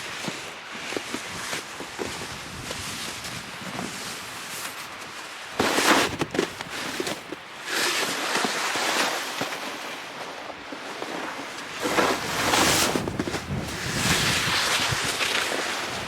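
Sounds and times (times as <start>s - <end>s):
wind gusting across microphone: 11.6s - 16.0s.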